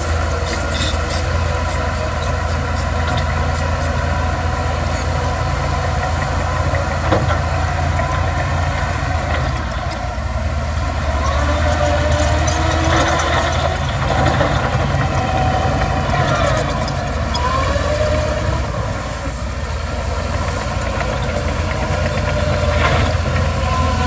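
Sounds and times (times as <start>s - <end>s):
diesel engine deep hum: 0.0s - 24.0s.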